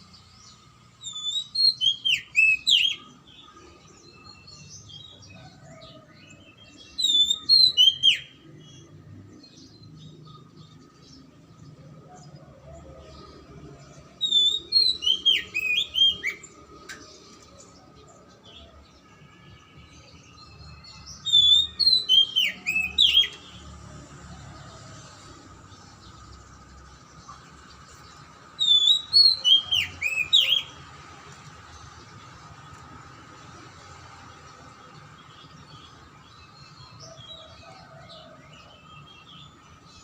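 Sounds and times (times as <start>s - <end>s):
bird singing whistled notes: 0.1s - 9.0s, 14.2s - 17.0s, 20.4s - 23.6s, 28.6s - 30.8s.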